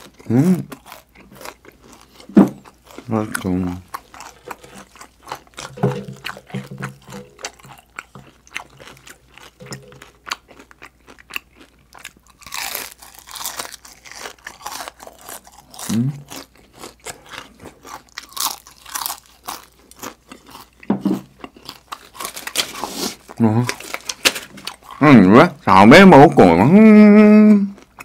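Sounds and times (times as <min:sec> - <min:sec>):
crunching crispy chicken skin: 0:06.9 - 0:20.7, 0:21.6 - 0:25.0.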